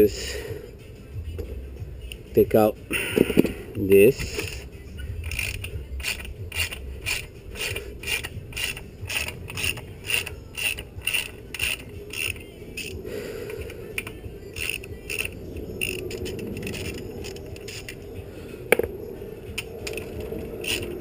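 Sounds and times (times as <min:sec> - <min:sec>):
socket ratchet clicking: 0:04.4 - 0:18.0, 0:19.5 - 0:21.0.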